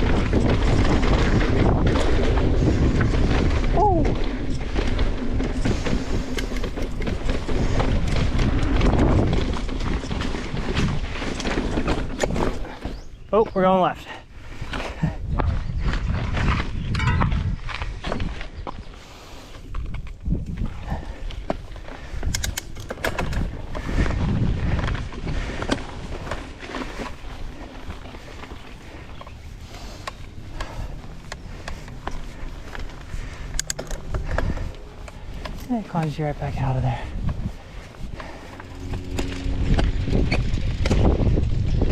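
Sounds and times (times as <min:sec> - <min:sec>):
wind rumble on microphone: 0:00.0 - 0:13.4, 0:14.0 - 0:41.9
bike clicks and rattles: 0:00.0 - 0:41.9
bike tyres over dirt and rock: 0:00.0 - 0:41.9
sharp rattling clicks: 0:22.2 - 0:23.6, 0:30.0 - 0:36.2.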